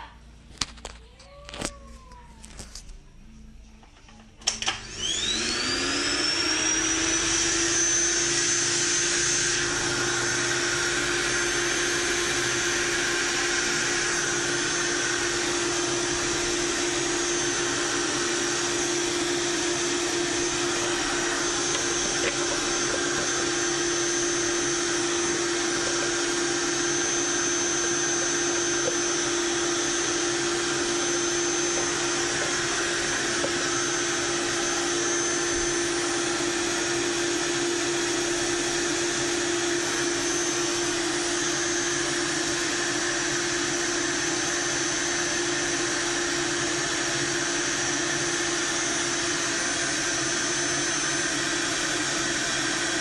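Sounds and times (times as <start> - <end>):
electric motor whining: 4.5 - 53.0.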